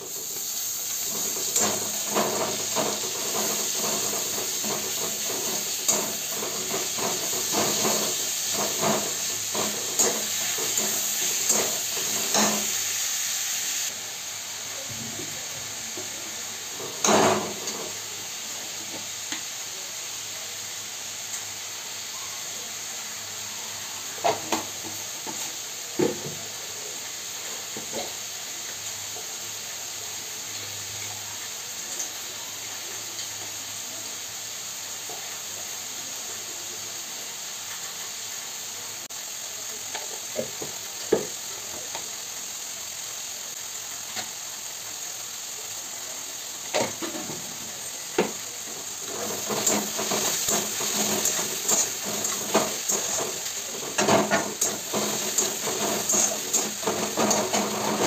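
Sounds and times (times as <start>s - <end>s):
onion and tomato sizzling in a pan: 0.0s - 58.0s
spatula scraping and clicking on pan: 1.0s - 12.8s, 49.0s - 58.0s.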